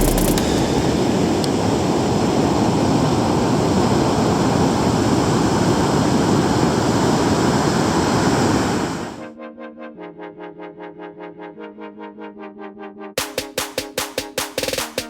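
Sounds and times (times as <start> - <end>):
ocean surf rushing: 0.0 - 9.2.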